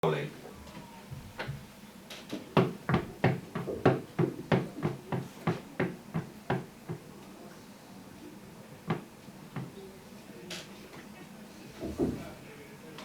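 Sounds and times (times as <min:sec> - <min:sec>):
sharp knocks: 0:02.2 - 0:07.0.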